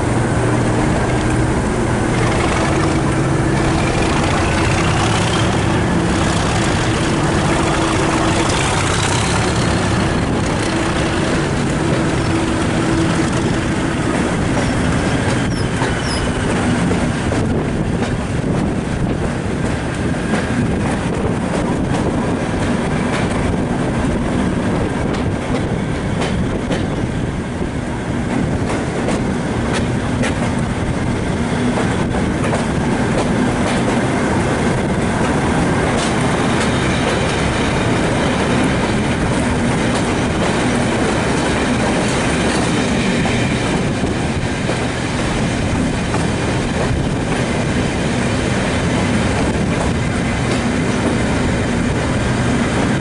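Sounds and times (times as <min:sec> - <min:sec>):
low engine drone: 0:00.0 - 0:15.6
clickety-clack of rail joints: 0:00.0 - 0:53.0
train wheels rumbling on rail: 0:00.0 - 0:53.0.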